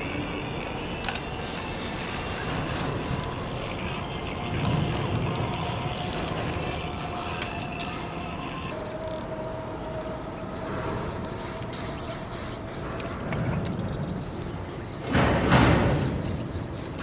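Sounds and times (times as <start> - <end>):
campfire crackling: 0.0 - 9.6
insect trilling: 0.0 - 17.0.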